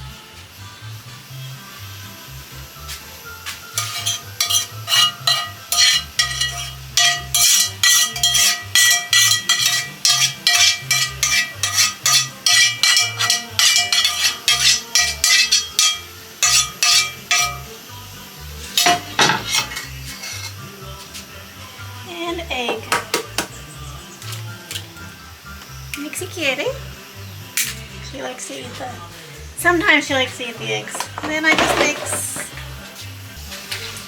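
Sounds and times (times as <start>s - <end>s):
utensil stirring in mixing bowl: 3.8s - 17.8s.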